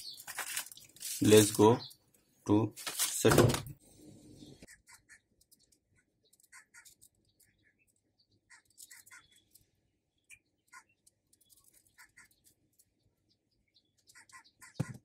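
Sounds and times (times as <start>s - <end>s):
faint bird chirps: 4.0s - 15.0s.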